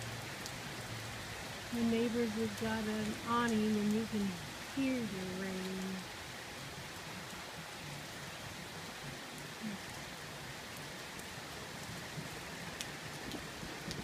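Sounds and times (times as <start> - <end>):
rain drop ticks: 0.0 - 6.1, 10.7 - 14.0
steady rain falling: 0.0 - 14.0.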